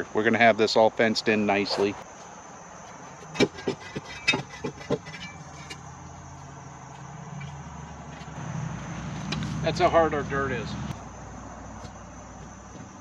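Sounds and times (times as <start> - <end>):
tool knocking hard-packed dirt: 3.2 - 5.4.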